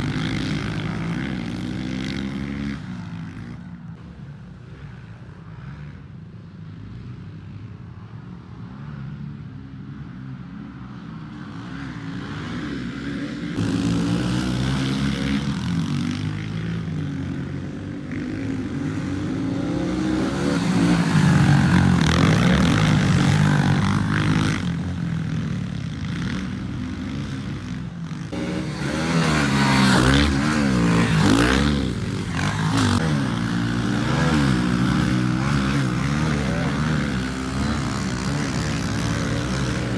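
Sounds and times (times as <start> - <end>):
pit bike engine revving: 13.6 - 39.9.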